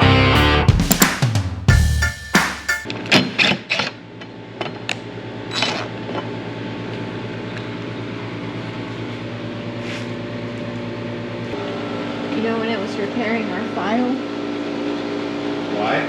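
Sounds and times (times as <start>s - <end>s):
steady machine hum: 6.4s - 15.7s.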